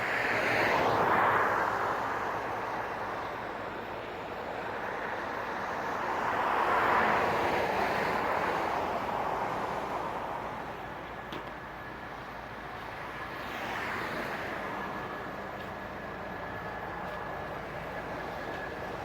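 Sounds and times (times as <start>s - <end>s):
heavy vehicle running: 9.5s - 19.0s.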